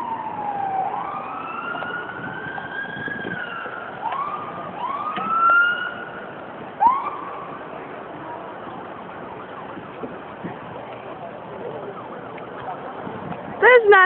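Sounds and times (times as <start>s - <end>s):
siren whoops: 0.0s - 7.6s
emergency siren wail: 0.0s - 13.9s.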